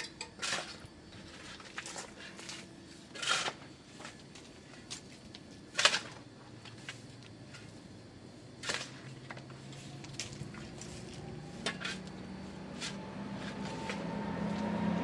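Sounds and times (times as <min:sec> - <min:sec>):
pots and utensils clinking: 0:00.0 - 0:00.8.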